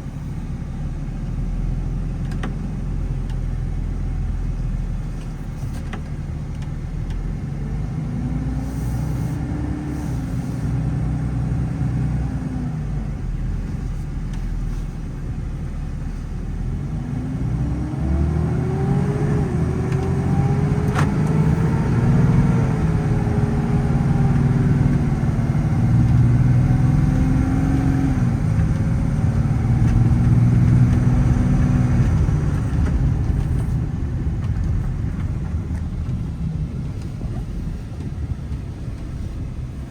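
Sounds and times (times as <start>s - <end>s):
diesel truck engine under load: 0.0s - 39.9s.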